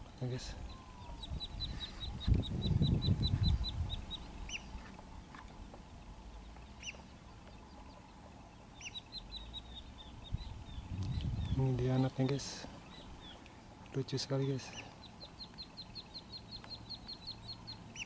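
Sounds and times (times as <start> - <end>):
high bird chirps: 0.7 - 4.9, 8.7 - 12.2, 14.4 - 18.0
low rumble: 9.2 - 12.2.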